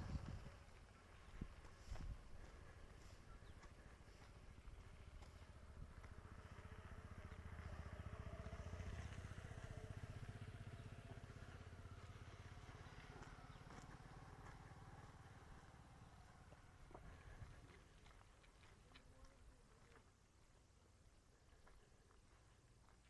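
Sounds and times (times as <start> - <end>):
motorcycle passing: 0.0 - 18.0.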